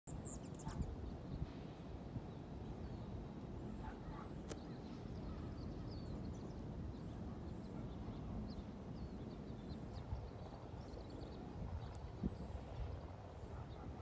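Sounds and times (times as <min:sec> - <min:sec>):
small birds chirping: 0:00.1 - 0:14.0
sharp click: 0:04.4 - 0:04.7.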